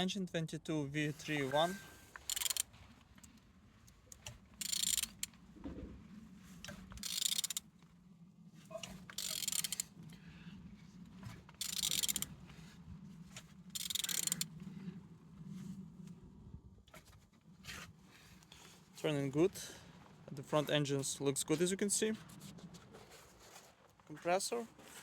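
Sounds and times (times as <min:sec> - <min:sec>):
rasping ratchet-like burst: 0:01.6 - 0:02.7, 0:04.6 - 0:05.3, 0:07.0 - 0:07.6, 0:09.2 - 0:09.9, 0:11.6 - 0:12.3, 0:13.7 - 0:14.5.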